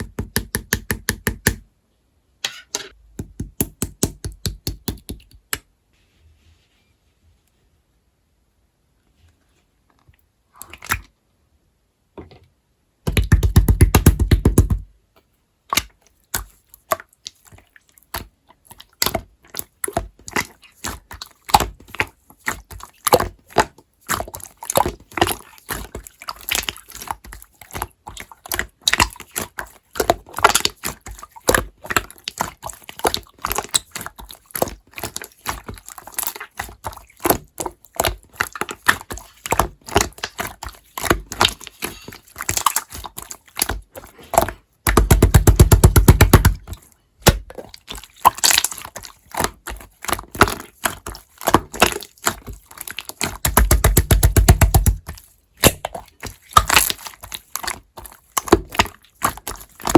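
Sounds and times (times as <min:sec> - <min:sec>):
slime squished by hand: 0:15.7 - 0:59.9.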